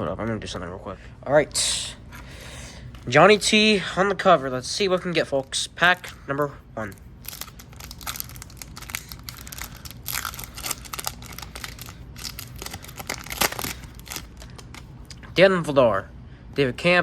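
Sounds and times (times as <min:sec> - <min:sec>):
card pack wrapper tearing and crinkling: 0:06.8 - 0:15.2.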